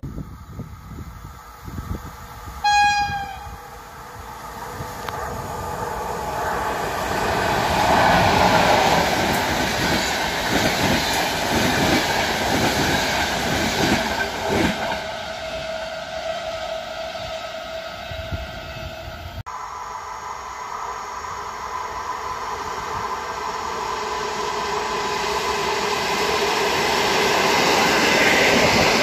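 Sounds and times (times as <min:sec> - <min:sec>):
high-speed train rushing past: 0:00.0 - 0:29.0
train horn blast: 0:02.6 - 0:03.8, 0:15.2 - 0:19.4.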